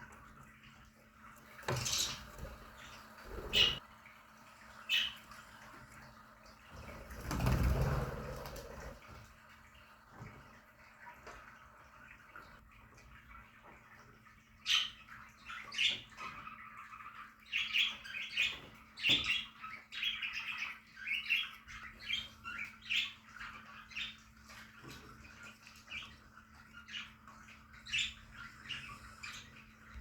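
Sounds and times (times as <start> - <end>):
budgerigars chirping: 1.7 - 3.8.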